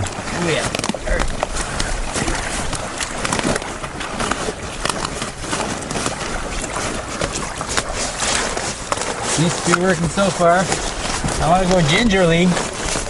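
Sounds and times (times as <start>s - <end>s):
tent nylon rustling: 0.0s - 13.0s.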